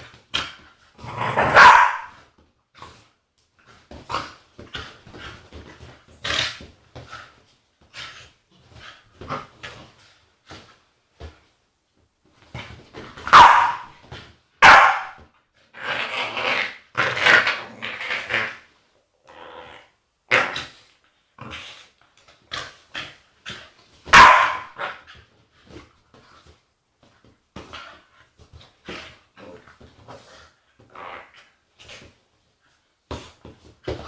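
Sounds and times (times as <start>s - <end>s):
dog growling: 1.0s - 2.1s, 15.8s - 18.6s, 19.2s - 20.7s, 30.9s - 31.5s
dog barking: 1.4s - 2.1s, 13.3s - 13.9s, 14.6s - 15.2s, 24.1s - 24.8s.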